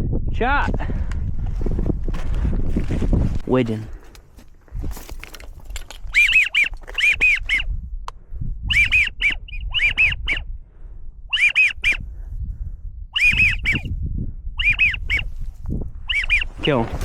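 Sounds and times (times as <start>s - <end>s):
duck whistling: 6.1s - 7.7s, 8.7s - 10.5s, 11.3s - 12.1s, 13.2s - 13.9s, 14.6s - 15.3s, 16.1s - 16.6s.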